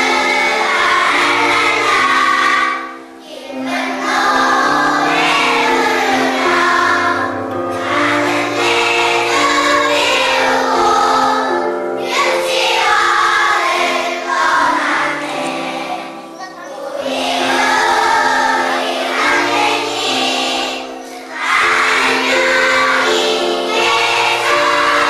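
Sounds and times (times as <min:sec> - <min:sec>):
children singing in unison: 0:00.0 - 0:25.0
instrumental accompaniment: 0:00.0 - 0:25.0.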